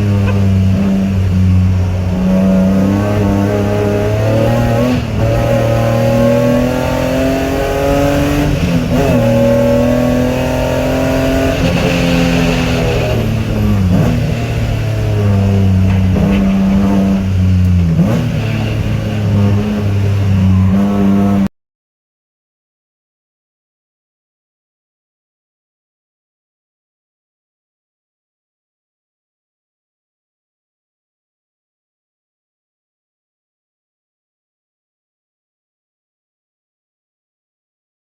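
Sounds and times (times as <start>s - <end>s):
car engine running hard: 0.0s - 21.5s.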